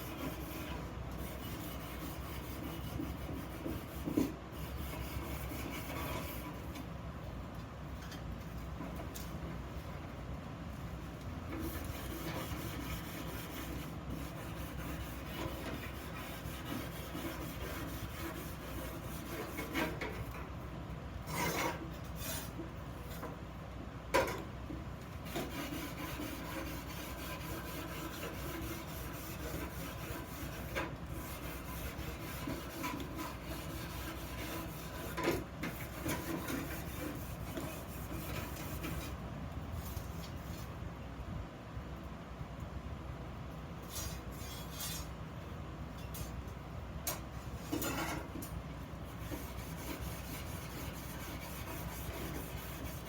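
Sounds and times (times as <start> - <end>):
rasping on iron: 0.0 - 6.6, 11.6 - 20.2, 21.3 - 22.6, 25.2 - 39.2, 49.1 - 53.0.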